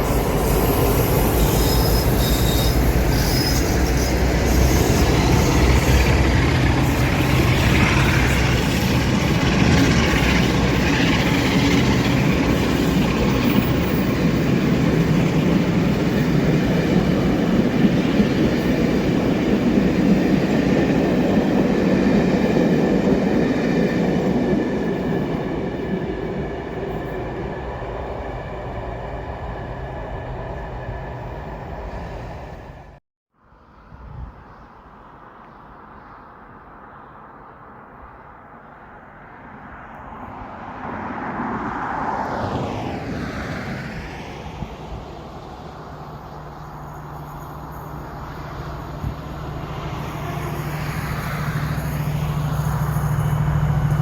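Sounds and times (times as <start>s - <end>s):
wheel squeal: 0.0s - 9.0s
train passing on rails: 0.0s - 54.0s.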